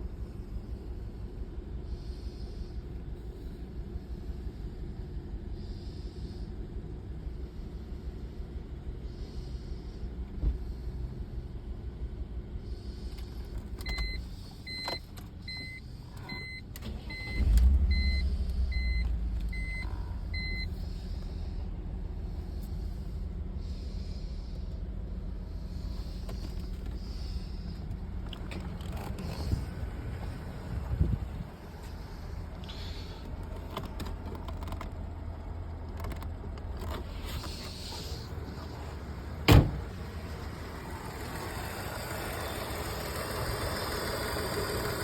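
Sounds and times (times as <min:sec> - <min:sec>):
car engine idling: 0:00.0 - 0:45.0
dashboard warning chime beeping: 0:13.8 - 0:20.8
engine starting with surge: 0:15.6 - 0:20.6, 0:39.5 - 0:45.0.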